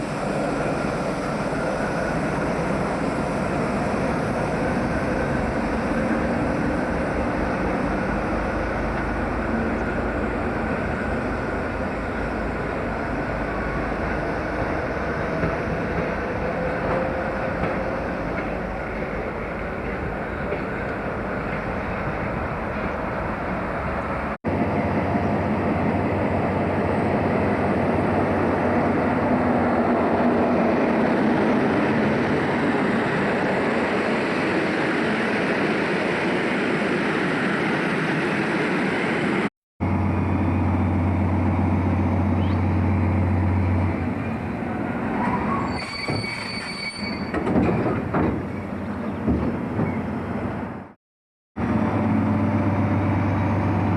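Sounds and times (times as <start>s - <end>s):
train rumbling on rails: 0.0s - 51.0s, 51.6s - 53.9s
train wheel squeal: 45.1s - 48.0s.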